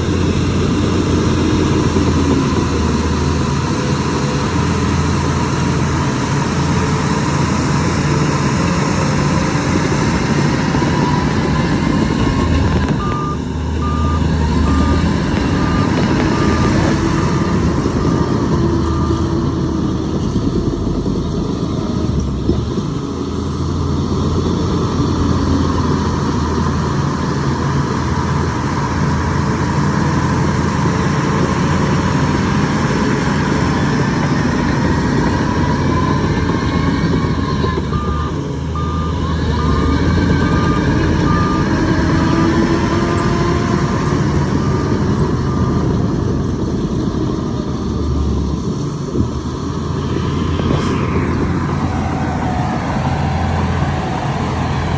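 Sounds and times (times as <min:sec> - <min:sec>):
diesel engine running: 0:00.0 - 0:54.9
reversing alarm beeping: 0:10.4 - 0:19.6, 0:35.2 - 0:46.4.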